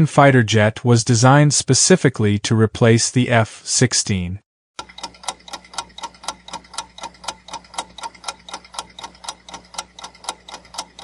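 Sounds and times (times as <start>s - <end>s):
rapid clock-like ticking: 4.8s - 11.0s.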